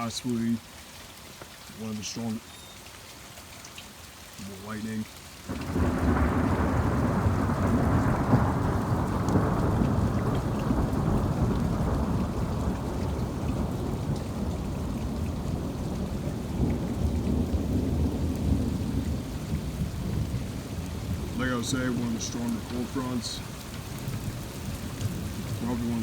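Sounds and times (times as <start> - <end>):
heavy rain hissing: 0.0 - 26.0
rolling thunder rumble: 5.5 - 26.0.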